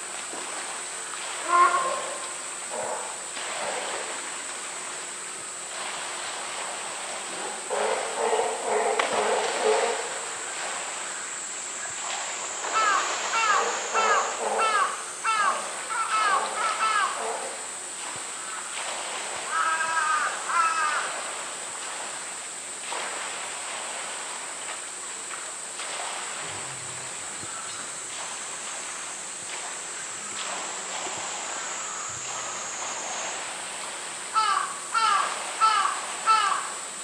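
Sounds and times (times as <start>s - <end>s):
bird harsh falling calls: 12.7s - 17.2s, 34.4s - 36.7s.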